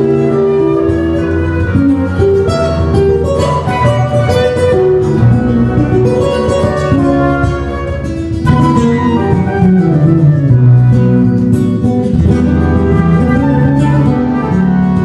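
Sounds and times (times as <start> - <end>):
held melody notes: 0.0 - 15.0
plucked accompaniment: 0.0 - 15.0.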